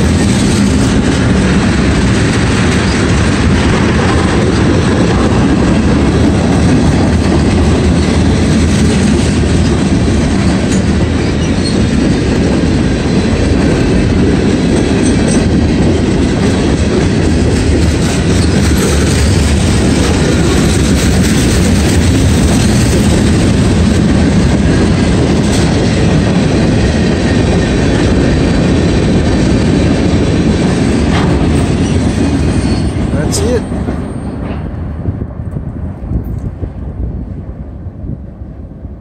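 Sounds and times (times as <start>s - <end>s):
freight train wheels rumbling: 0.0s - 39.0s.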